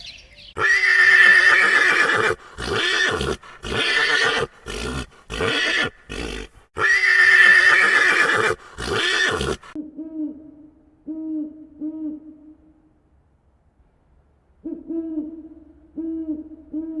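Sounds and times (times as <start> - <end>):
zebra braying bark: 0.6 - 9.8.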